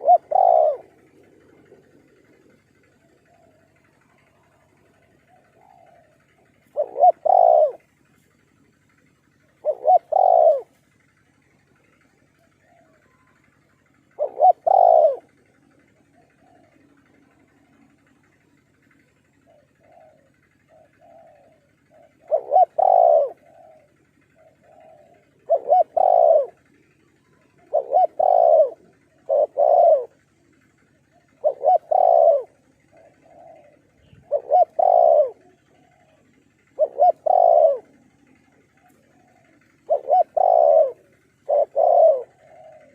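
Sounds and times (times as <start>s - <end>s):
dove cooing: 0.0s - 42.9s
faint dove cooing: 0.0s - 42.9s.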